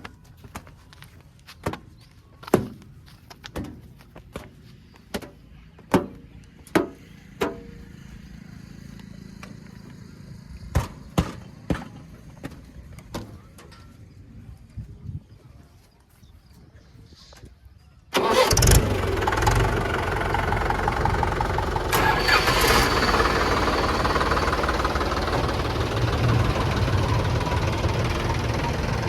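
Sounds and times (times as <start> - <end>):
low steady rumble: 18.8 - 29.0.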